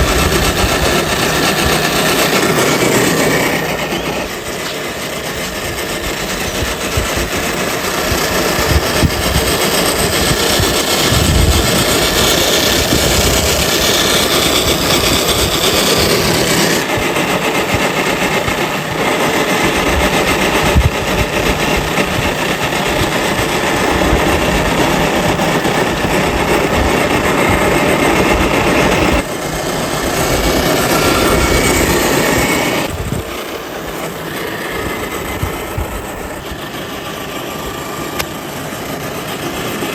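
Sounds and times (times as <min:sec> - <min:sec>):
small electric motor and gearbox: 0:00.0 - 0:39.9.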